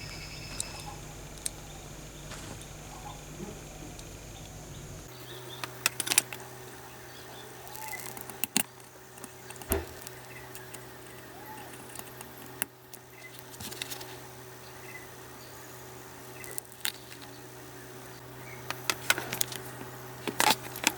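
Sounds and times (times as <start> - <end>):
steady low hum: 0.0 - 20.9
metal parts and tools clicking: 7.6 - 14.1.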